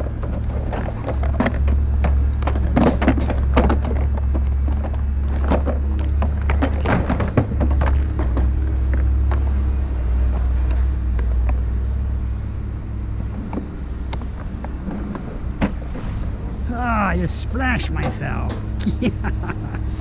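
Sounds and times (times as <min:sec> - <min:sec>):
knocks and rattles: 0:00.0 - 0:09.5
vehicle engine rumbling: 0:00.0 - 0:20.0.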